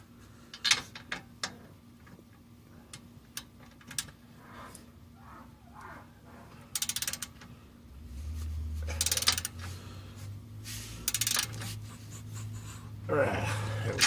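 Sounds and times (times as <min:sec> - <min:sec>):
low steady hum: 0:00.0 - 0:14.0
socket ratchet clicking: 0:06.8 - 0:07.4, 0:09.0 - 0:09.6, 0:11.1 - 0:11.6.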